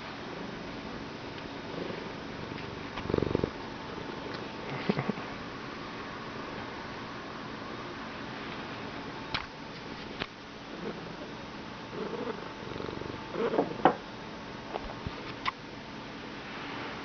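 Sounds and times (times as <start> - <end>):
cat purring: 1.6 - 4.7, 10.7 - 11.3, 11.9 - 13.8.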